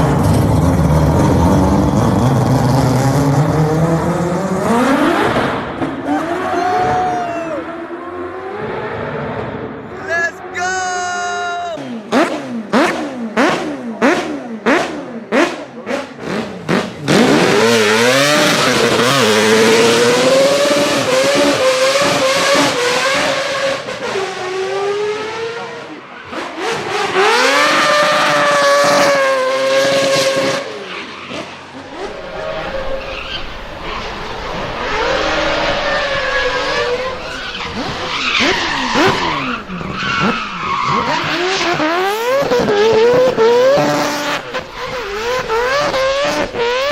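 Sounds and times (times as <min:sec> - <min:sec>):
car engine screaming at high revs: 0:11.8 - 0:46.9
tyre squeal: 0:30.8 - 0:41.9.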